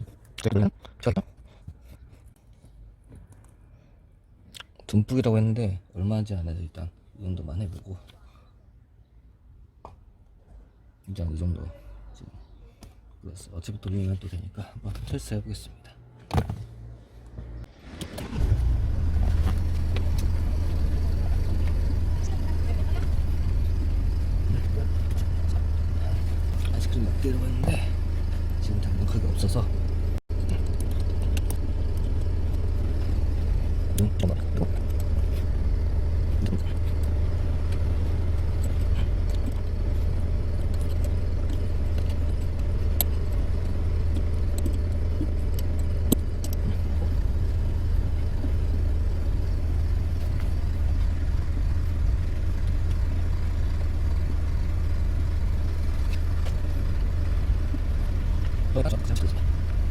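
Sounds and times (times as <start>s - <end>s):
steering clicks and rattles: 17.2s - 59.9s
diesel engine idling: 17.4s - 59.9s.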